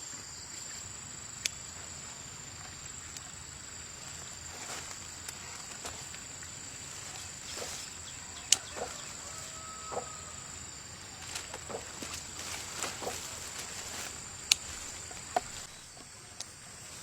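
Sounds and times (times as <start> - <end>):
insects droning: 0.0 - 17.0
handling knocks and clicks: 11.2 - 16.1.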